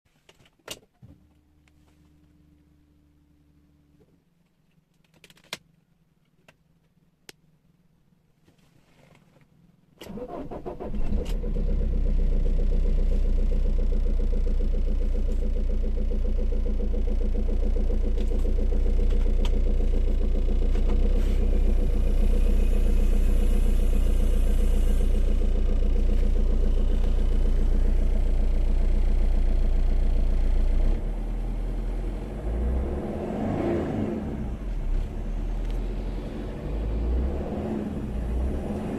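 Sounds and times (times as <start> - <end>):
diesel engine idling: 10.1 - 38.9
engine revving: 10.1 - 38.9.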